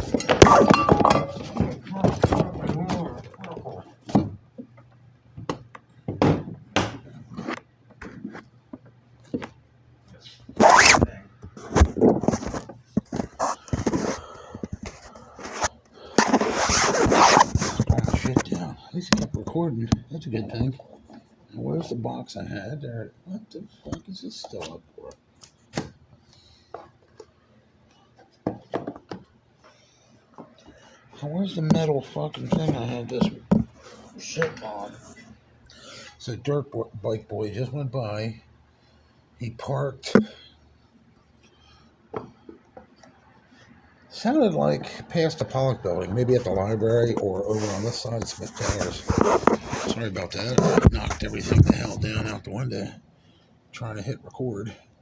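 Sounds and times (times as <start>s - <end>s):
objects knocking and clattering: 0.0s - 4.8s, 5.4s - 7.2s, 28.2s - 29.3s, 31.6s - 33.7s.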